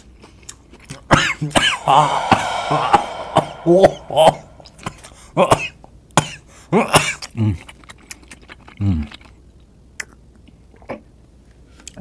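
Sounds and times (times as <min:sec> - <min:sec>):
man chewing with wet mouth clicks: 0:07.7 - 0:09.4, 0:10.0 - 0:10.9.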